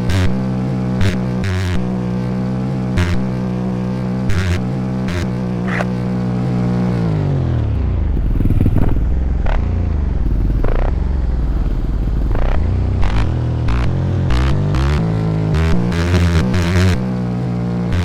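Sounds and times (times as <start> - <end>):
motorcycle engine rumbling: 0.0 - 18.0
sharp clicks: 5.7 - 6.0.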